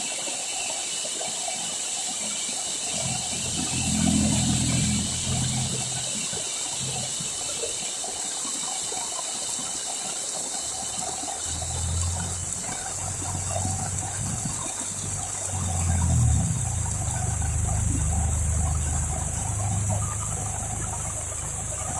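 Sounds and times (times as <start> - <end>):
runoff water gushing: 0.0 - 21.9
heavy rain pouring: 2.2 - 8.2, 10.6 - 21.9.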